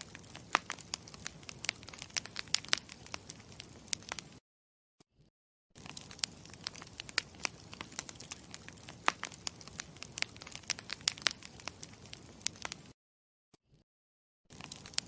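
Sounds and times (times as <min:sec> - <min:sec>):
campfire crackling: 0:00.0 - 0:04.4, 0:05.8 - 0:12.9, 0:14.5 - 0:15.0.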